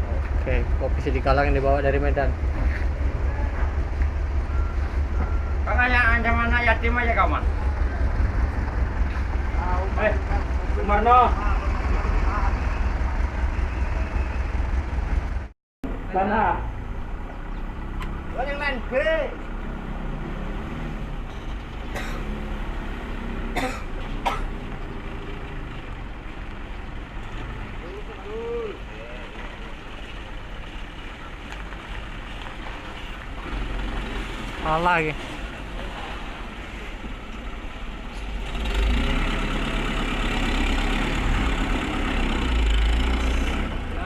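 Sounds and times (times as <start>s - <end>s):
truck engine idling: 0.0s - 20.0s
truck engine running: 0.0s - 44.0s
person coughing: 23.6s - 24.5s.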